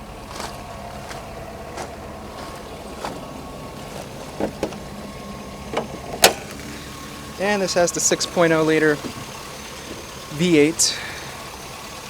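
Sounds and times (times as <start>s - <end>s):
car engine idling: 0.0s - 12.0s
sharp clicks and knocks: 3.9s - 4.9s, 5.7s - 6.6s, 9.0s - 10.1s.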